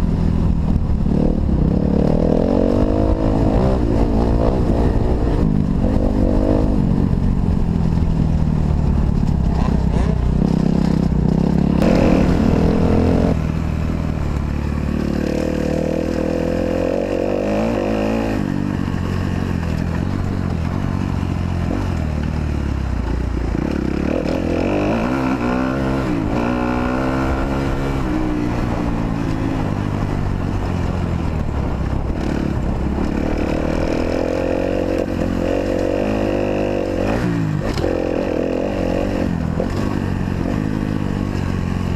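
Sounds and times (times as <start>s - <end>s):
motocross engine revving: 9.5s - 13.5s, 23.5s - 29.0s.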